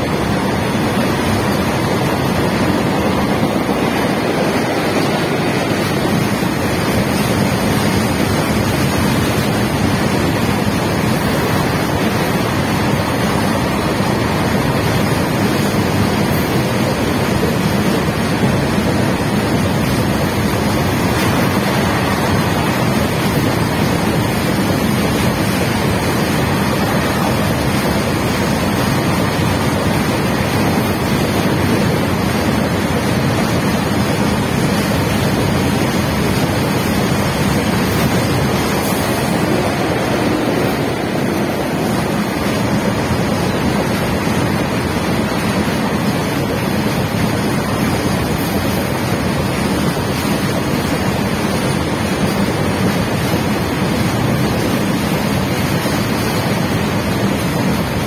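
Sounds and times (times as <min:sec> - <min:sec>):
goods train wagons rolling past: 0:00.0 - 0:58.0
wind buffeting microphone: 0:00.0 - 0:58.0.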